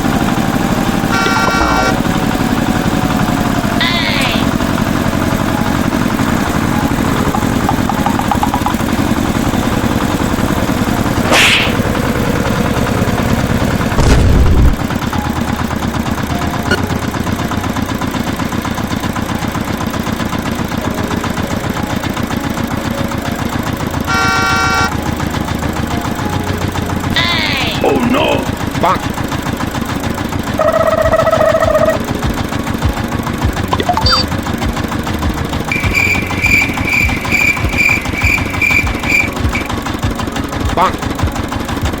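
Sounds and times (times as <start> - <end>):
tractor engine chugging: 0.0 - 42.0
horn honk: 1.0 - 2.3, 24.1 - 25.1, 35.7 - 39.8
loud low thump: 14.0 - 14.8.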